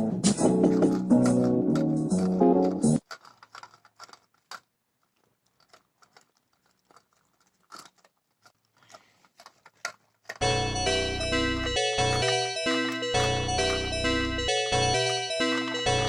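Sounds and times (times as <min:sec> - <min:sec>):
background music: 0:00.0 - 0:03.0, 0:10.4 - 0:16.0
dog chewing: 0:00.6 - 0:10.4.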